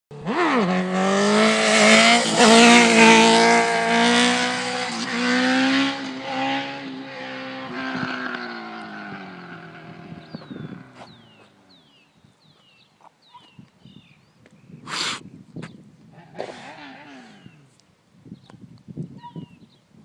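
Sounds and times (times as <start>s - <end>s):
motorcycle engine at high revs: 0.1s - 11.6s.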